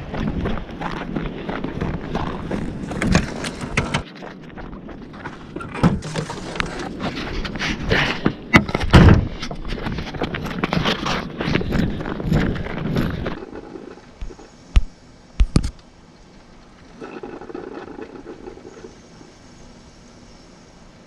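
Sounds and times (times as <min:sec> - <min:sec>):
footsteps crunching in snow: 0:00.0 - 0:08.4, 0:09.2 - 0:14.9
wind buffeting microphone: 0:00.0 - 0:15.7
knocks and thumps: 0:08.2 - 0:15.7.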